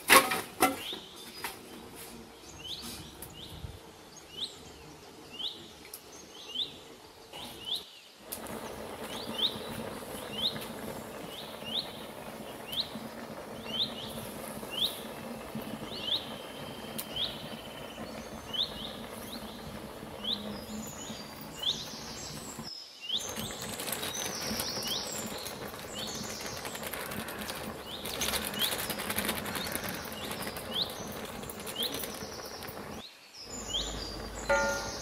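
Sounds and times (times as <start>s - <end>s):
steady hiss: 0.0s - 35.0s
birds falling calls: 7.4s - 35.0s.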